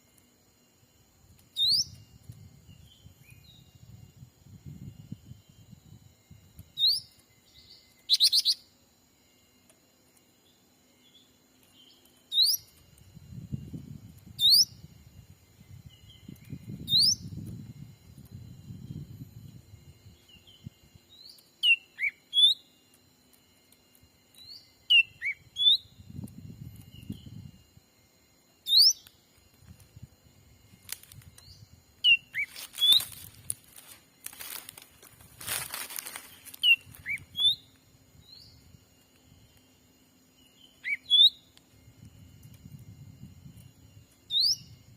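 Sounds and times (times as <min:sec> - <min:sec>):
small bird chirping: 0:01.3 - 0:05.8, 0:06.5 - 0:08.8, 0:10.4 - 0:19.2, 0:20.1 - 0:23.0, 0:24.3 - 0:27.6, 0:28.6 - 0:29.9, 0:30.8 - 0:33.6, 0:36.0 - 0:38.8, 0:40.3 - 0:41.6, 0:44.1 - 0:44.9
rustling noise: 0:32.4 - 0:37.3.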